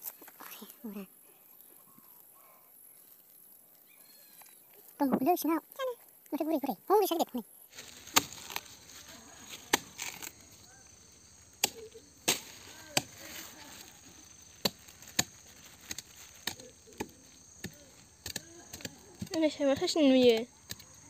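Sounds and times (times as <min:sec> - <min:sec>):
blade chopping into palm pith: 0:08.1 - 0:08.7, 0:09.6 - 0:10.4, 0:14.6 - 0:19.9.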